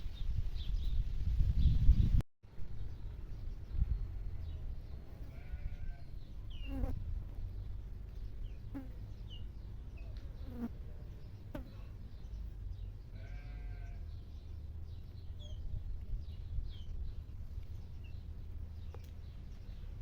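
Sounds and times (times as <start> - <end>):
small birds chirping: 0.1 - 20.0
goat or sheep bleat: 5.2 - 6.1, 13.1 - 14.2.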